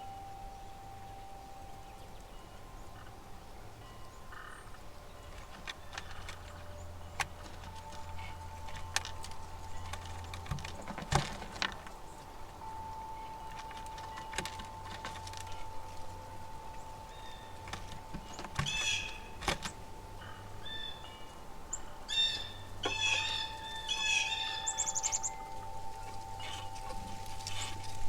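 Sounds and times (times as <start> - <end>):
thin steady tone: 0.0 - 5.4
songbirds chirping: 0.0 - 28.0.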